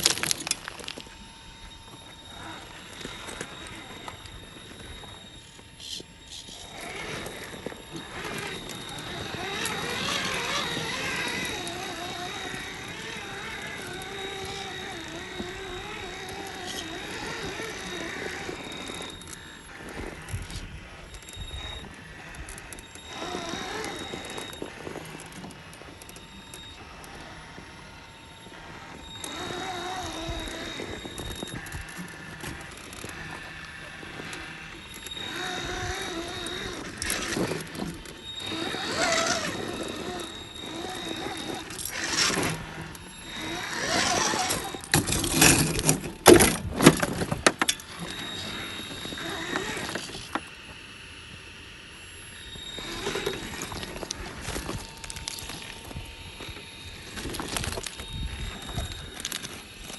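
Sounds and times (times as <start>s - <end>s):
electric motor whine: 0.0s - 59.9s.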